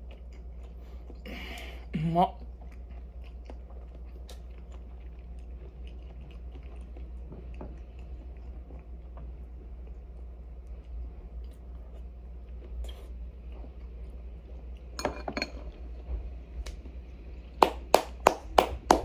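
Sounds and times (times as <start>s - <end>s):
person chewing food: 0.0s - 14.9s.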